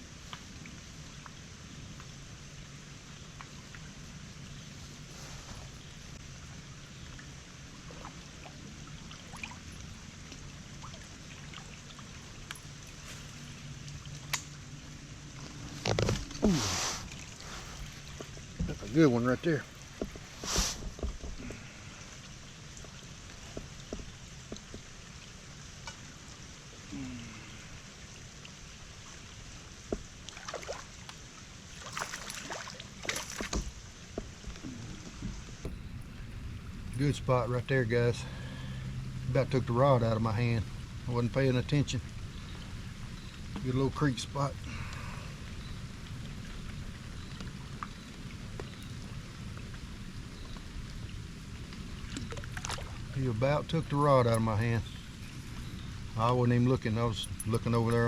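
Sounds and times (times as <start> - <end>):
creek water trickling: 0.0 - 58.0
light rain pattering: 0.0 - 58.0
fish splashing in water: 30.1 - 34.1, 51.8 - 53.2.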